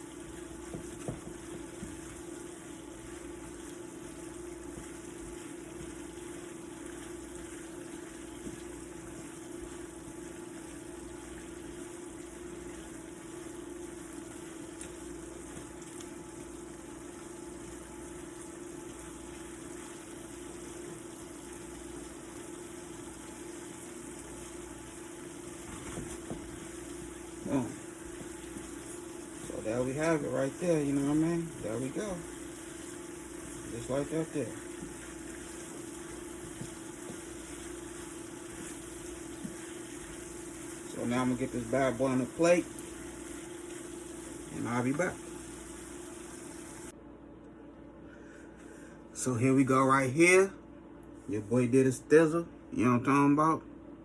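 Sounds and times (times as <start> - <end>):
constant hiss: 0.0 - 46.9
machine hum: 0.0 - 49.6.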